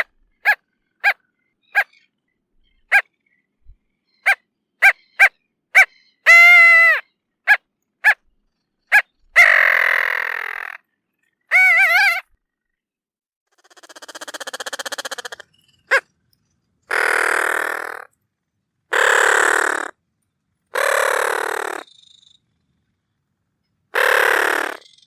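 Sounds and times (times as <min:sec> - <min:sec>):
tern calls: 0:00.0 - 0:08.3, 0:08.9 - 0:12.3, 0:13.6 - 0:16.2, 0:16.9 - 0:18.1, 0:18.9 - 0:20.0, 0:20.7 - 0:22.4, 0:23.9 - 0:25.0.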